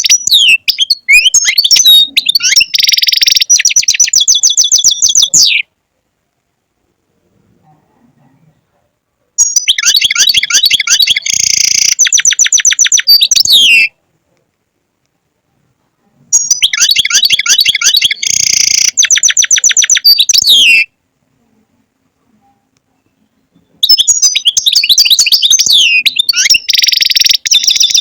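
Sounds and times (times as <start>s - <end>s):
goldfinch song: 0.0s - 5.7s, 9.4s - 13.9s, 16.4s - 20.9s, 23.1s - 28.0s.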